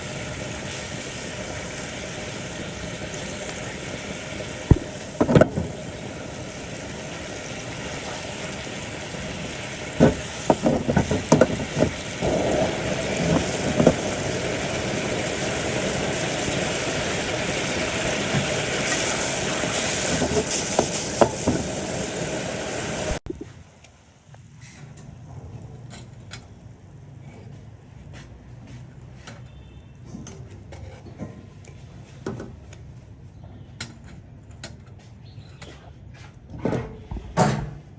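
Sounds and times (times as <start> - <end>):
food sizzling in a pan: 0.0 - 23.2.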